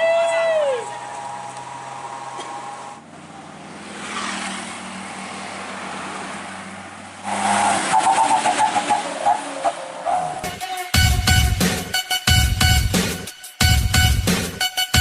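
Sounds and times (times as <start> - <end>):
road noise: 0.0 - 10.7
truck engine droning: 0.8 - 11.4
music with a beat: 10.4 - 15.0.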